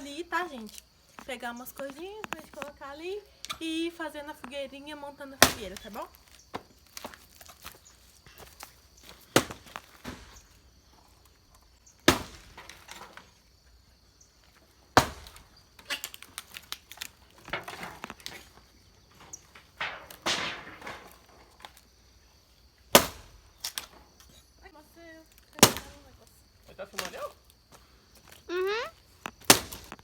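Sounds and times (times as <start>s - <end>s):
firewood knocking and clattering: 12.1s - 13.3s, 15.0s - 21.8s.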